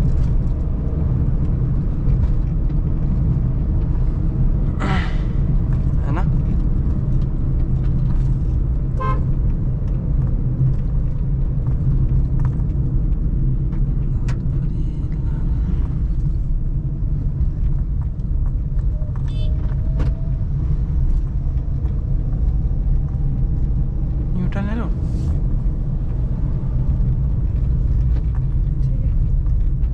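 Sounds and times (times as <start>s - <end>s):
car engine and road noise drone: 0.0s - 29.9s
vehicle horn toots: 9.0s - 9.3s.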